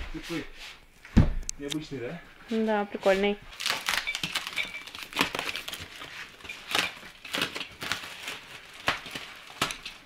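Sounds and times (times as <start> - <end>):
packaging rustling: 3.5 - 10.0.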